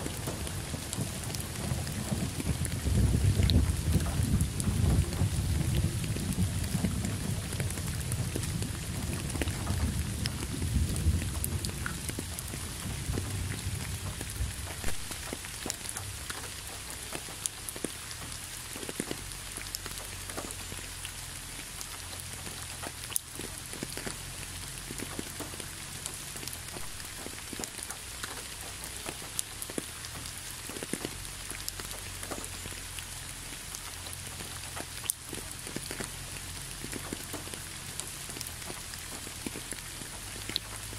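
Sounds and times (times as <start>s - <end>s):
low rumble of thunder: 0.0s - 17.8s
rain falling on road: 0.0s - 40.9s
raindrops ticking: 0.0s - 40.9s.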